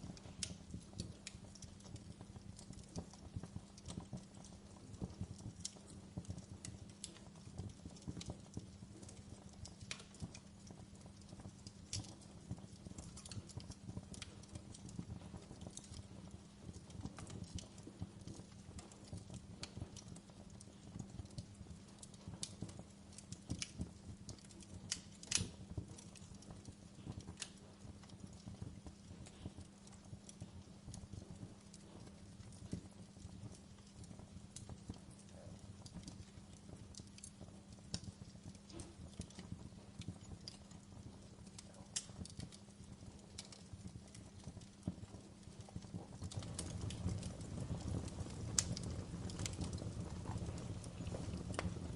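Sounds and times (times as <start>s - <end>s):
logs crackling in fireplace: 0.0s - 51.9s.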